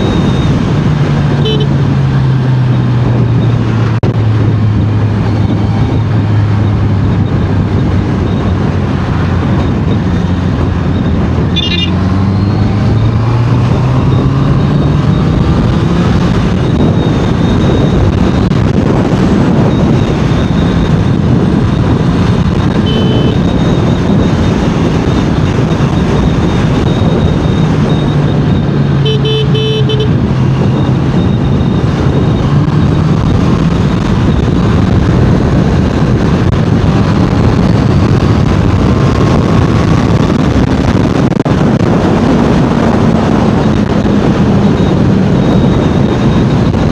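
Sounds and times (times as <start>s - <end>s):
motorcycle engine running: 0.0s - 46.9s
wind rush: 0.0s - 46.9s
vehicle horn: 1.4s - 1.8s, 11.6s - 12.0s, 22.8s - 23.5s, 29.0s - 30.2s.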